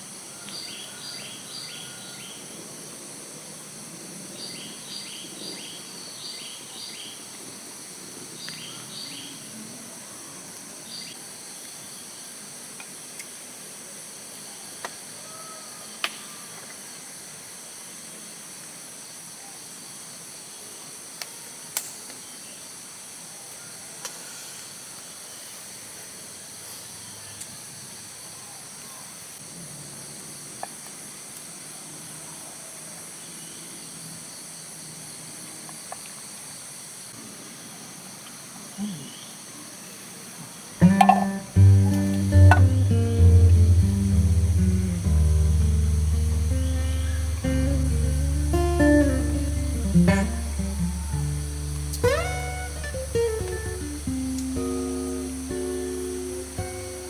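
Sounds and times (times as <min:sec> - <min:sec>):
high-pitched insect chorus: 0:13.4 - 0:57.0
bird chirps: 0:46.1 - 0:54.1.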